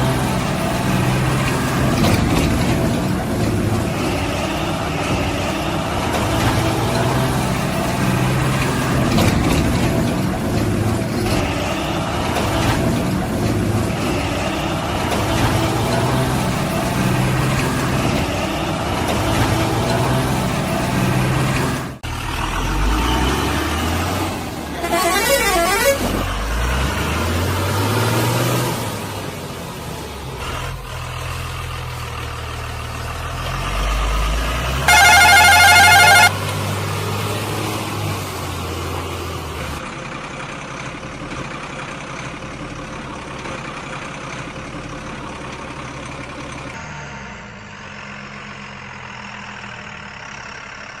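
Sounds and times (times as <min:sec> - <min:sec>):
heavy vehicle engine revving: 0:00.0 - 0:40.2
loud horn blast: 0:24.8 - 0:26.1, 0:34.8 - 0:36.4.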